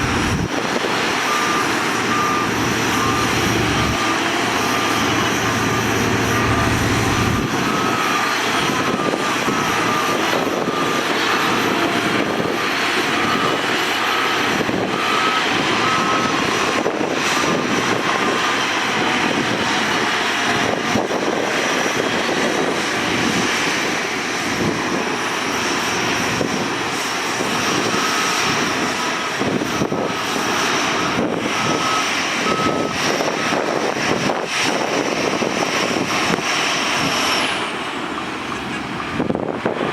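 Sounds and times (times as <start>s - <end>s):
reversing alarm beeping: 0.0s - 20.0s, 26.4s - 36.1s
heavy diesel machinery running: 0.0s - 39.9s.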